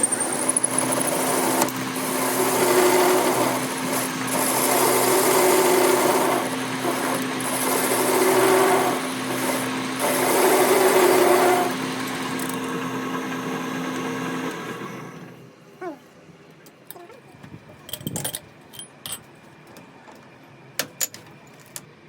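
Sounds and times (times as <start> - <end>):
grinding on steel: 0.0 - 12.7
power tool motor hum: 0.0 - 15.4.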